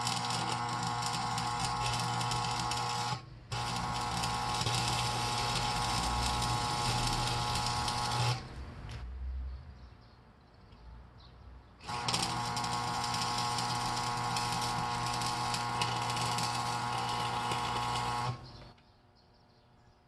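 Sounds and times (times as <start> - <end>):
welding arc buzzing and hissing: 0.0 - 8.4, 11.8 - 18.5.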